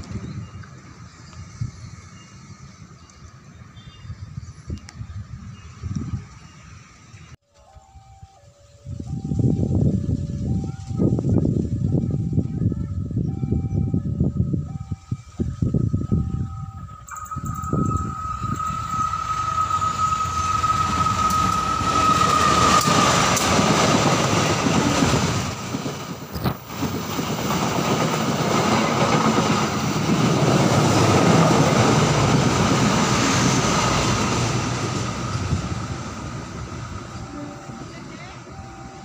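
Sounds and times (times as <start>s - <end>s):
steady high tone: 7.6s - 24.0s, 31.8s - 39.0s
train rolling over rails: 14.5s - 39.0s.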